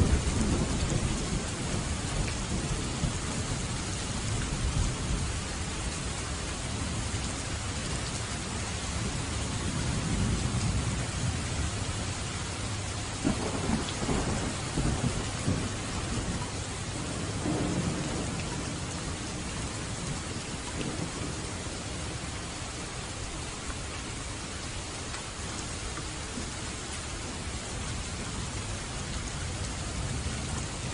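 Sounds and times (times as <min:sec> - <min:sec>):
rolling thunder: 0:00.0 - 0:05.3, 0:09.0 - 0:11.9, 0:12.7 - 0:22.3
steady rain: 0:00.0 - 0:30.9
thunder crack: 0:13.2 - 0:16.4, 0:17.0 - 0:18.4.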